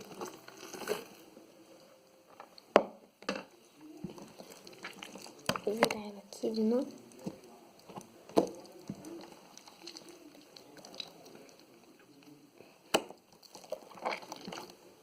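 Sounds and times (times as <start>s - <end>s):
slime squelching: 3.9s - 15.0s.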